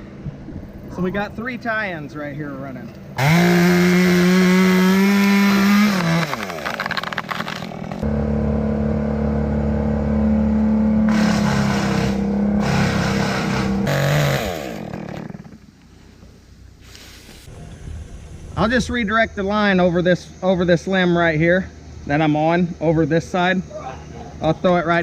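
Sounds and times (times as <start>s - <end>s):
chainsaw revving: 3.2s - 8.2s, 8.8s - 15.7s.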